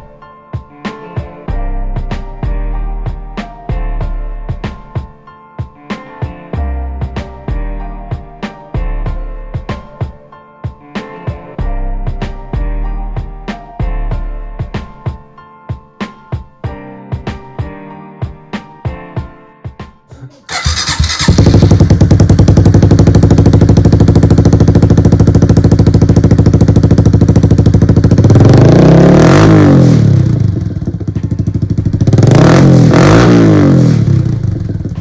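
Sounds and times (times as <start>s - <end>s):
motorbike engine idling and revving: 20.5s - 35.0s.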